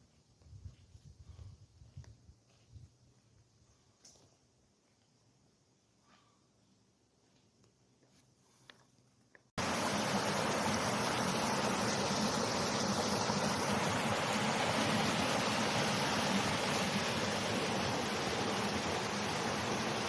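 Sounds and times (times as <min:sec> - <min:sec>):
stream flowing: 0:09.6 - 0:20.0.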